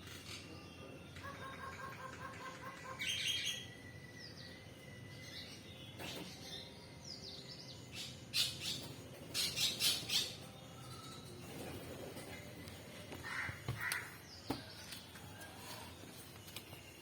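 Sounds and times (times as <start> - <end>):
birds chirping: 0.2 - 15.1.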